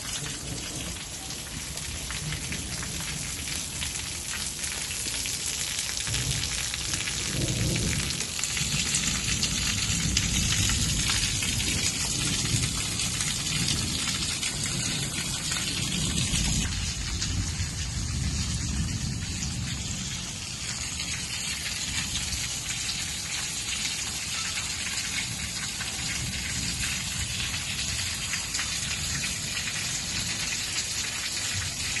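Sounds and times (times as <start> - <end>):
heavy rain falling: 0.0 - 32.0
low rumbling thunder: 6.0 - 22.4.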